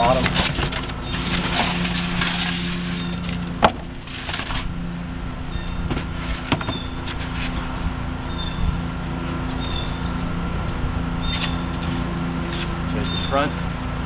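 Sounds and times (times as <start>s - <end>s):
steady low hum: 0.0s - 14.0s
wooden hive parts knocking: 3.6s - 3.9s, 5.8s - 6.9s.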